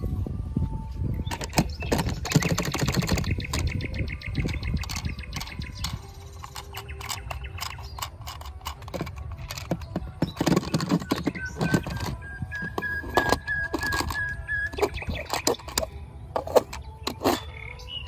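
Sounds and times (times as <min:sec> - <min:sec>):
plastic toy cars clattering: 0:04.5 - 0:17.5.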